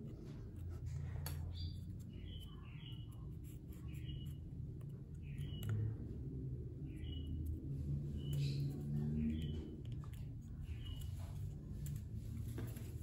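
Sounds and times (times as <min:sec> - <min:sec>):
steady low hum: 0:00.0 - 0:13.0
bird chirps: 0:01.5 - 0:04.4, 0:05.2 - 0:06.1, 0:06.8 - 0:09.8.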